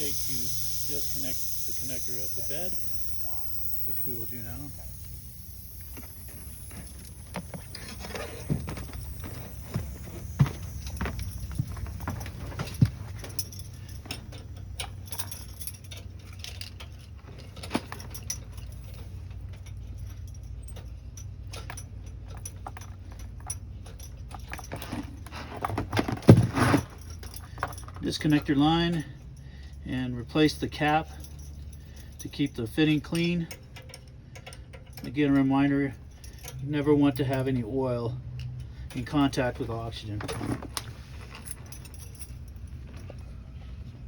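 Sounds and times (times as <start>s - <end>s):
steady low hum: 0.0s - 19.0s
metallic clicks of fittings: 0.0s - 24.7s, 30.8s - 37.6s.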